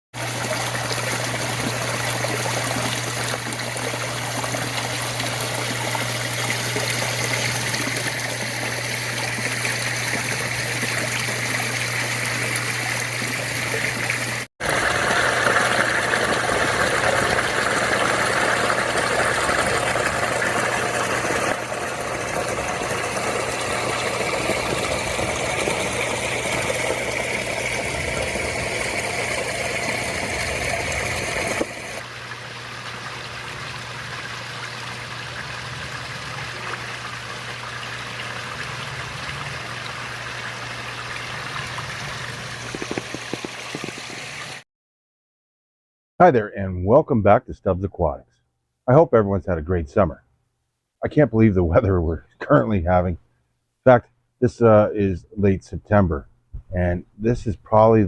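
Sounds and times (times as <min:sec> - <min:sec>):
water trickling over waterfall: 0:00.2 - 0:44.6.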